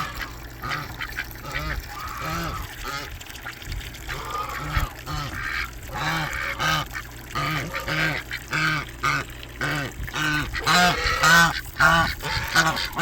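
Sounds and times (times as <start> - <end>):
ducks quacking: 0.0 - 3.1, 4.1 - 13.0.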